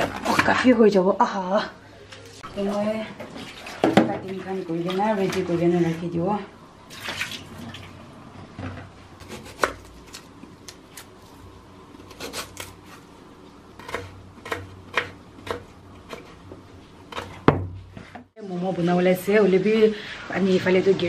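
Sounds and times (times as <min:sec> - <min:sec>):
knife chopping vegetables: 0:09.2 - 0:10.2, 0:13.8 - 0:17.8.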